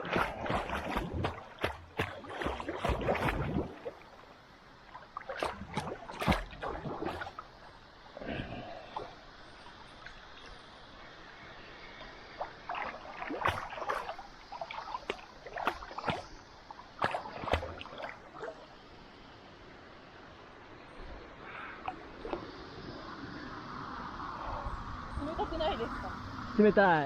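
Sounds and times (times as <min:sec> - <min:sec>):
water washing: 0:00.0 - 0:04.3, 0:04.9 - 0:07.6, 0:12.4 - 0:16.4
paddles splashing in water: 0:00.0 - 0:11.0, 0:12.0 - 0:18.9.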